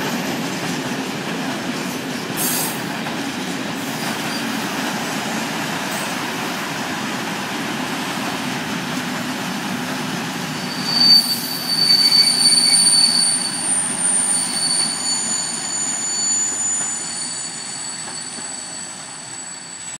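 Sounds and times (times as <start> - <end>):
train wheels squealing: 0.0 - 7.1, 9.4 - 20.0
freight train rumbling past: 0.0 - 20.0.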